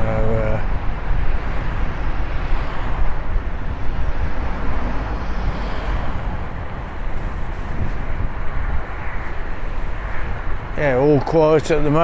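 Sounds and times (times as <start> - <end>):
road rumble: 0.0 - 12.0
wind rushing: 0.0 - 12.0.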